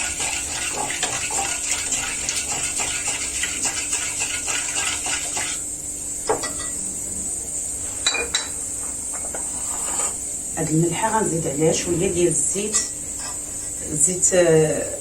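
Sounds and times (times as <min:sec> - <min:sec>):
spoon stirring and clinking in dish: 0:00.0 - 0:05.6, 0:06.3 - 0:06.8, 0:08.0 - 0:08.6, 0:12.6 - 0:13.5.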